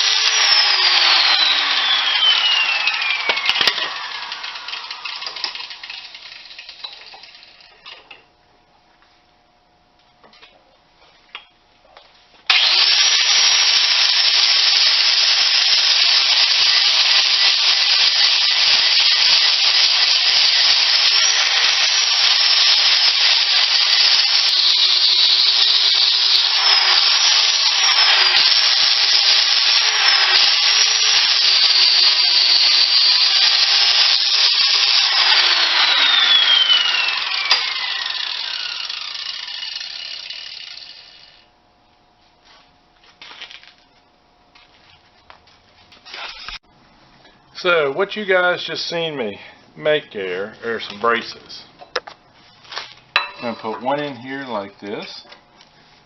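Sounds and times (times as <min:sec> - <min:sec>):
power tool cutting steel: 0:00.0 - 0:07.8, 0:12.5 - 0:41.5.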